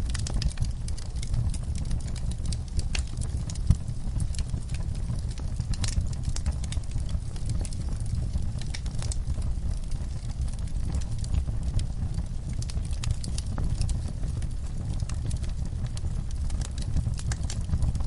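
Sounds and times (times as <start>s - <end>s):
burning logs crackling: 0.0s - 18.0s
low rumble of flames: 0.0s - 18.0s
sharp pops and snaps: 12.1s - 14.1s.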